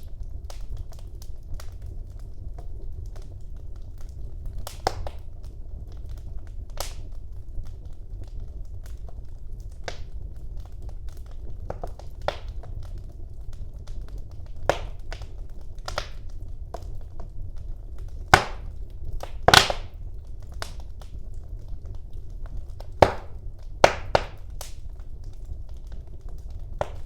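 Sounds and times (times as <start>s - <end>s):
fire crackling in a fireplace: 0.0s - 27.0s
loud sharp wood snaps: 4.7s - 5.2s, 11.7s - 12.7s, 14.7s - 15.3s, 15.9s - 16.8s, 18.3s - 20.0s, 22.8s - 24.8s, 26.8s - 27.0s.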